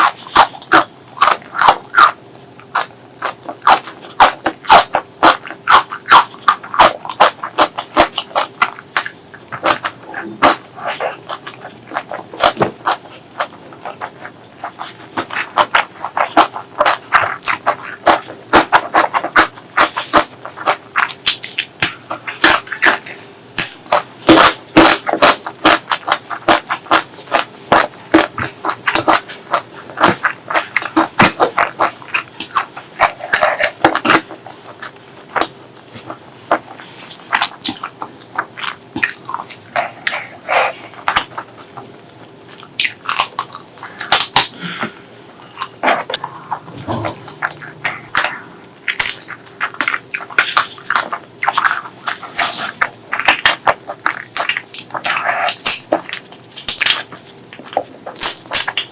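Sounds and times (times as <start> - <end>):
chewing and biting food: 0.0 - 58.9.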